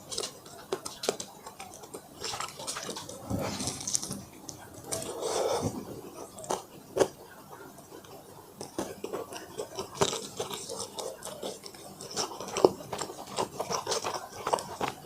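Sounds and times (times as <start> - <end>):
crunching fried chicken: 0.0 - 15.0.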